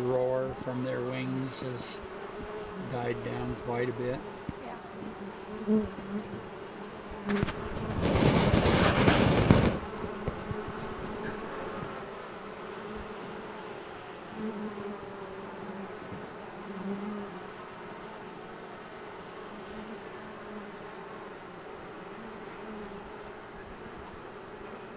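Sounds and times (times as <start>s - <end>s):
bee swarm humming: 0.0s - 24.9s
bees humming close by: 0.0s - 24.9s
loud rushing noise: 7.9s - 9.8s.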